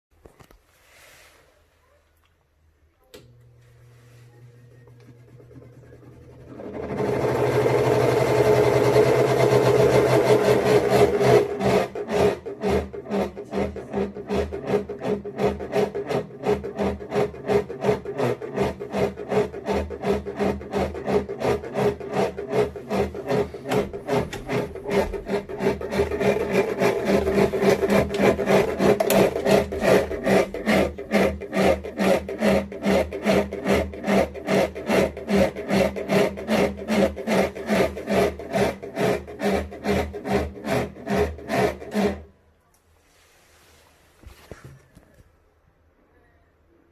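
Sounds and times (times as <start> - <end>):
ventilation fan humming: 3.0 - 42.2
rhythmic scraping rub in fan: 11.1 - 42.2.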